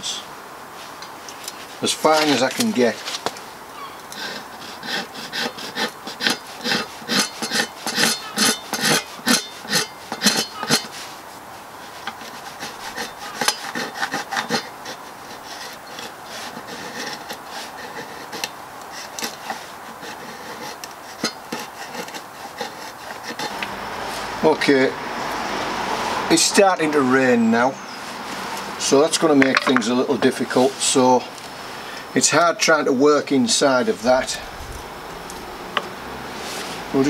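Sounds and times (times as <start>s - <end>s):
knife scraping wood shavings: 1.3s - 24.3s.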